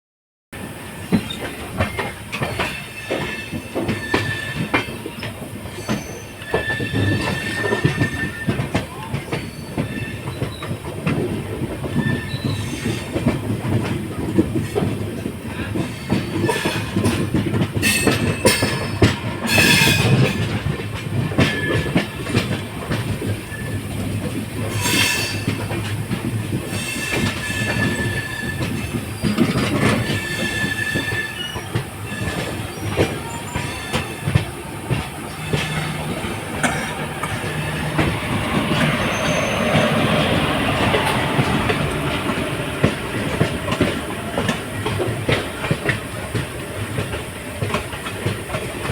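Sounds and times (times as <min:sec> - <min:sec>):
train rumbling on rails: 0:00.6 - 0:48.9
high wheel squeal: 0:01.1 - 0:10.8, 0:11.9 - 0:13.2, 0:23.2 - 0:25.9, 0:26.7 - 0:43.6
wheels clacking over rail joints: 0:01.1 - 0:48.9.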